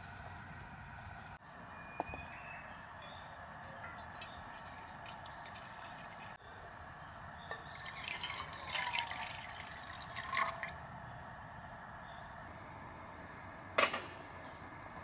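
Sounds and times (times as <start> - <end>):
liquid pouring and dripping: 3.7 - 6.4, 7.6 - 10.8.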